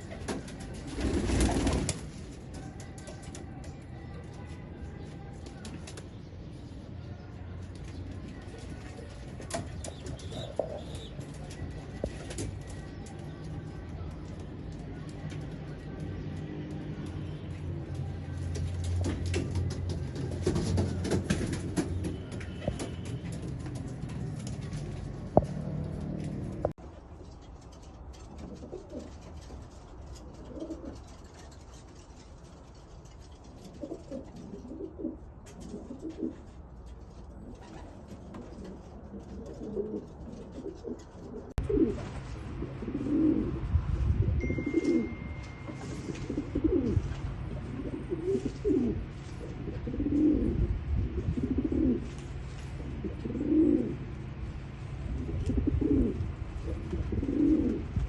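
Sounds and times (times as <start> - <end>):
pigeons cooing: 7.8 - 14.8, 33.7 - 36.5, 37.4 - 58.0
low rumble: 41.9 - 46.3.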